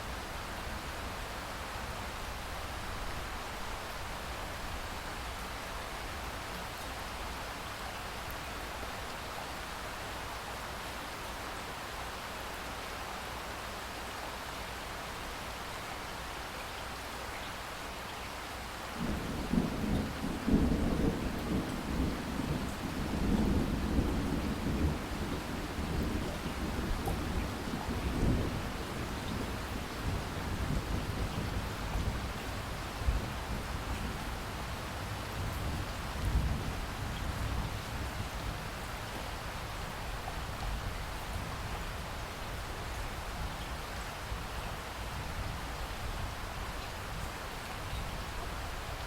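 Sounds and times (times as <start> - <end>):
steady rain: 0.0 - 49.0
low thunder rumble: 19.0 - 38.8.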